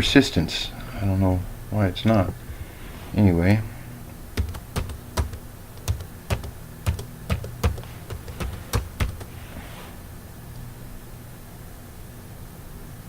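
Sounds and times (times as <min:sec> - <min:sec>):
computer keys clicking: 0:04.4 - 0:09.4.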